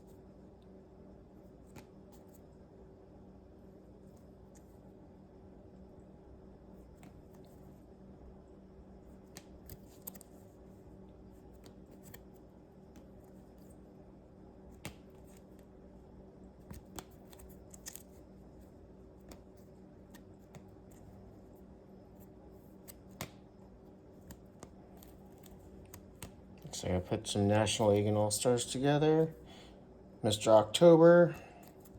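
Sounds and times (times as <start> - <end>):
faint steady hum: 0.0 - 31.9
plastic binder pages flipping: 9.1 - 10.5, 11.4 - 13.7, 16.6 - 18.2, 24.1 - 26.4.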